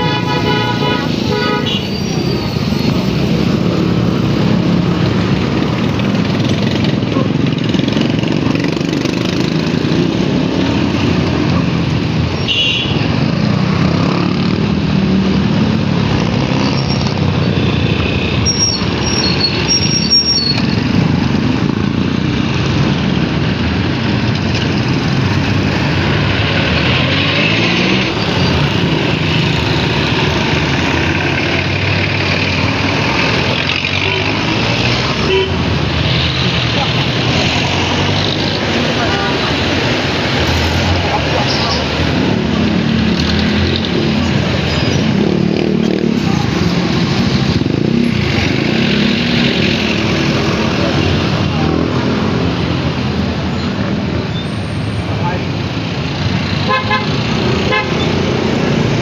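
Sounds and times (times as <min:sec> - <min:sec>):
road traffic noise: 0:00.0 - 0:59.0
high-pitched squeaks: 0:18.4 - 0:20.8.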